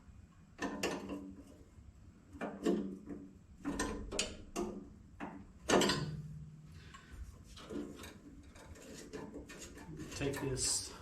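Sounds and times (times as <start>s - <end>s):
metal tools knocking and clanking: 5.7s - 6.2s.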